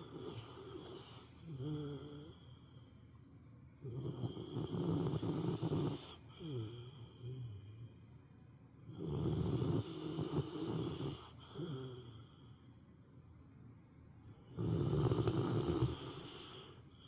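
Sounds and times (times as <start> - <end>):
dog snoring: 0.0 - 2.6, 3.8 - 7.8, 8.9 - 12.4, 14.4 - 16.8.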